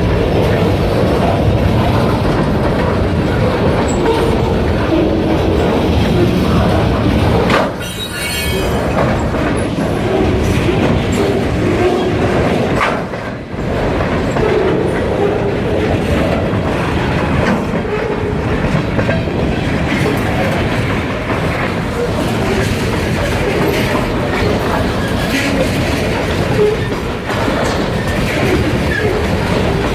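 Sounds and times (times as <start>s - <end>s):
train wheels clacking: 0.0s - 29.9s
high wheel squeal: 7.7s - 9.0s.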